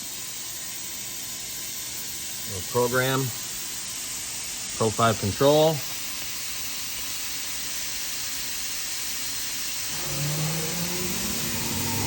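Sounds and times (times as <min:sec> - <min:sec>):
machining center hiss: 0:04.8 - 0:12.0
electric motor whine: 0:09.9 - 0:12.0.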